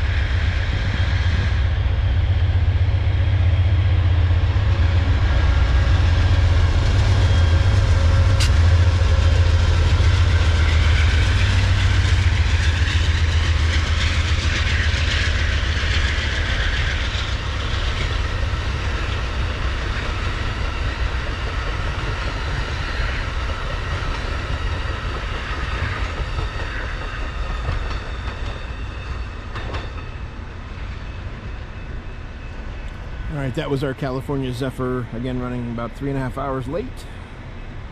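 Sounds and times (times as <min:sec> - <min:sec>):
passenger train passing: 0:00.0 - 0:37.9.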